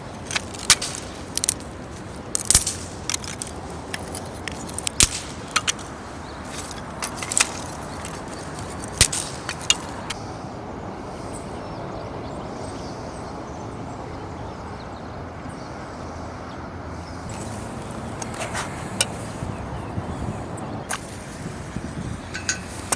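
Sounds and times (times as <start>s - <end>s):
firewood snapping and popping: 0.0s - 10.2s
steady rushing background noise: 0.0s - 22.9s.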